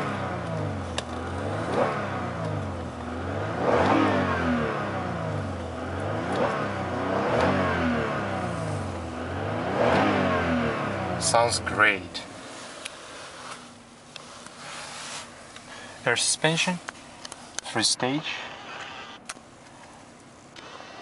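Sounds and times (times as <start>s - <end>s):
car engine revving: 0.0s - 16.2s.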